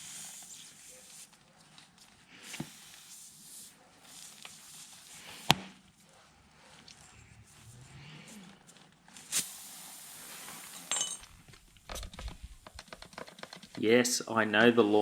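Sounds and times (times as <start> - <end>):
faint handling noises: 0.4 - 9.4.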